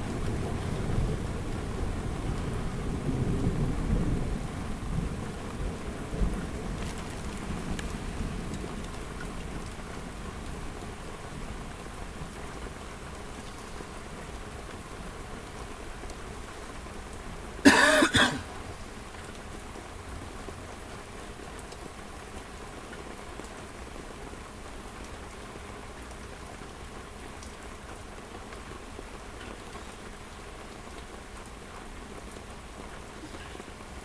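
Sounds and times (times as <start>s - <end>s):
rain falling: 0.0s - 34.0s
person coughing: 17.7s - 18.5s.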